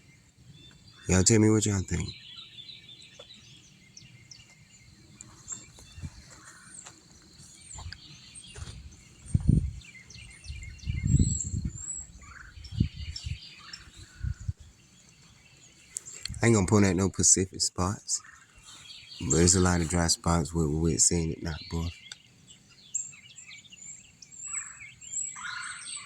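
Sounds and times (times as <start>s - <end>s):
small birds chirping: 0.0s - 26.0s
muffled thuds on microphone: 7.7s - 9.8s.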